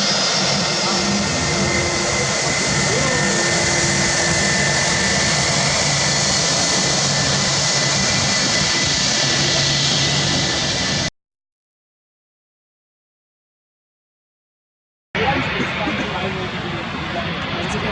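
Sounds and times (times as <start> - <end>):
jet engines rushing and whining: 0.0 - 11.1, 15.2 - 17.9.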